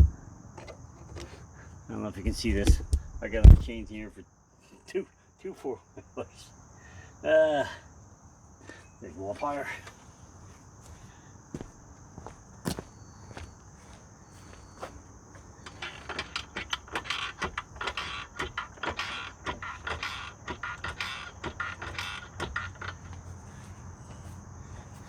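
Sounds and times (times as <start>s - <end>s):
high insect drone: 0.0s - 25.0s
roller chain clattering: 15.6s - 23.6s.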